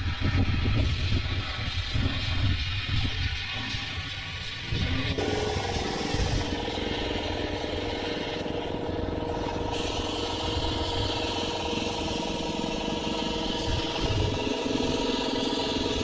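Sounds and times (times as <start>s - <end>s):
engine humming: 4.0s - 16.0s.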